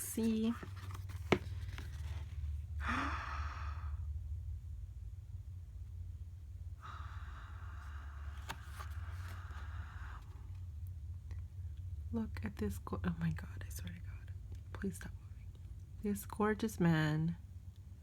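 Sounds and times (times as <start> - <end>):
paper pages clicking: 0.0 - 2.2, 8.3 - 9.6
low hum: 0.0 - 18.0
person sighing: 2.8 - 4.0.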